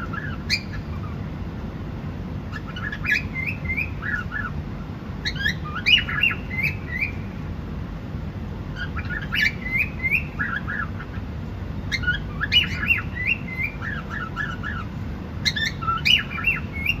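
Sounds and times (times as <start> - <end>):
cockatiel chirping and squawking: 0.0 - 1.2, 2.5 - 4.6, 5.2 - 7.3, 8.7 - 11.3, 11.9 - 17.0
low background hum: 0.0 - 17.0.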